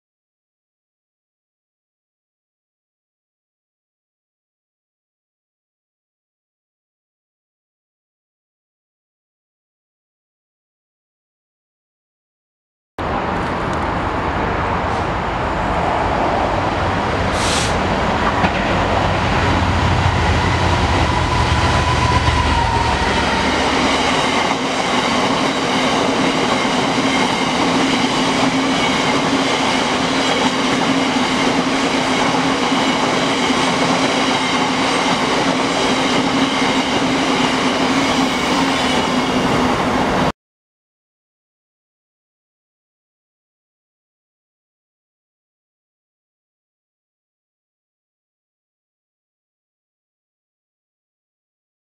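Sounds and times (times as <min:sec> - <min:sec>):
diesel locomotive low rumble: 0:13.0 - 0:25.3.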